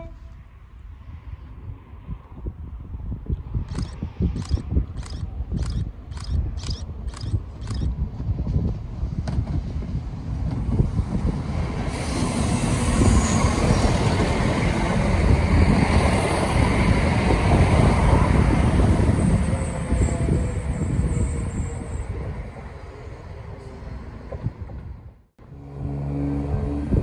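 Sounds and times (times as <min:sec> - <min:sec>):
diesel train passing: 0:06.2 - 0:27.0.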